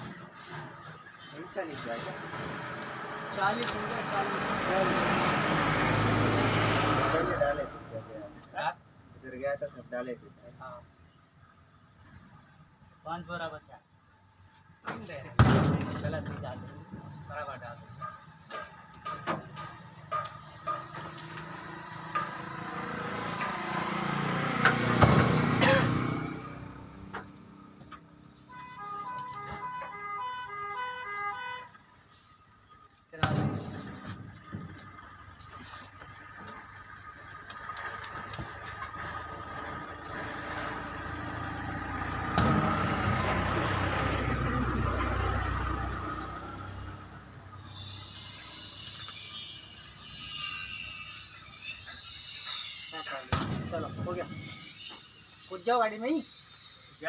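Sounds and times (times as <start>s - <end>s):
vehicle engine passing by: 2.1s - 8.4s, 20.6s - 28.3s, 33.8s - 48.7s.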